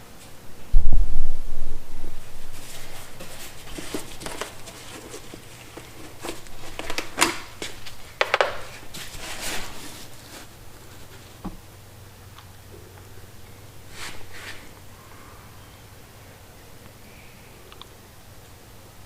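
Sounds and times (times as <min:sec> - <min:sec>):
plastic funnel and bottle handled: 0:02.3 - 0:11.6.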